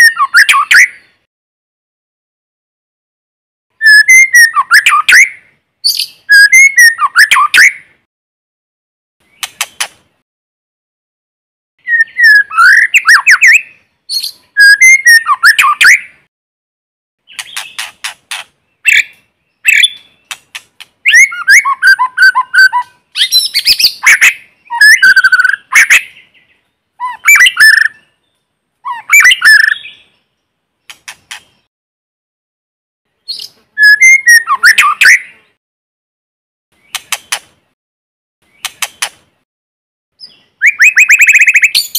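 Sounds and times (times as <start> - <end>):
bird song with whistles and trills: 0.0 - 1.3, 3.7 - 8.0, 11.8 - 16.3, 17.2 - 20.4, 21.0 - 31.7, 33.2 - 35.6, 40.2 - 41.9.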